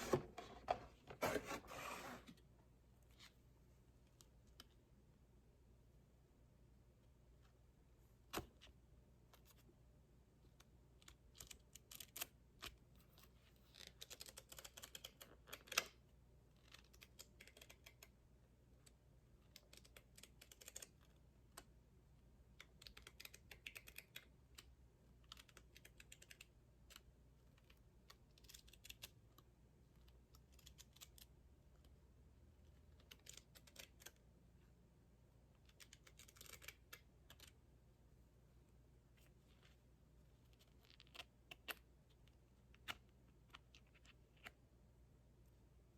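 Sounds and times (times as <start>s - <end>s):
cardboard packaging rustling: 0.0s - 2.4s.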